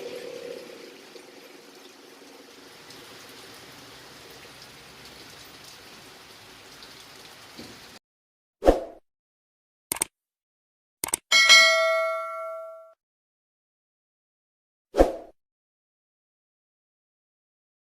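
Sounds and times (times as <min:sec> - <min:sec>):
steady rain hiss: 0:00.9 - 0:08.0.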